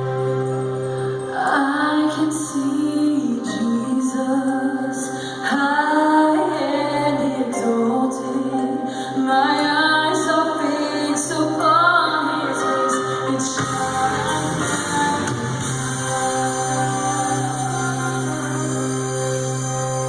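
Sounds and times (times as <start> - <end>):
woman singing: 1.2 - 20.0
instrumental accompaniment: 9.5 - 20.0.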